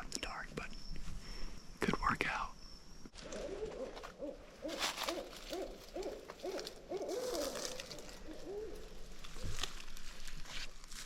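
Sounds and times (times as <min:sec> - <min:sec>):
owl hooting: 0:03.2 - 0:09.6.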